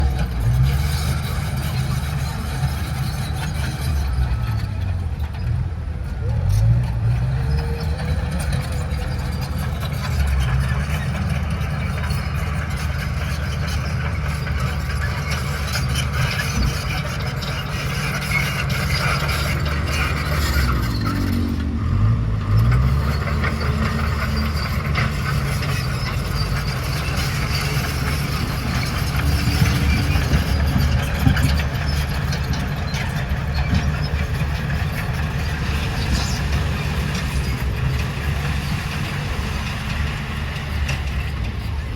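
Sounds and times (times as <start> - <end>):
bulldozer diesel engine: 0.0 - 41.9
dense rattle: 22.6 - 41.9.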